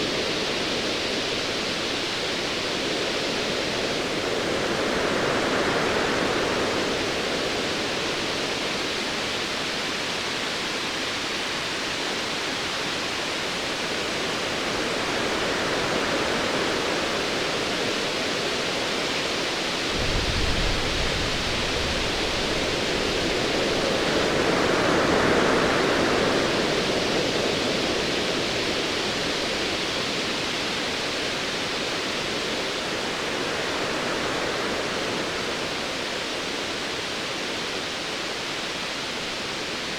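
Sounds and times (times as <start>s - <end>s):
distant thunder rumble: 19.9s - 23.8s.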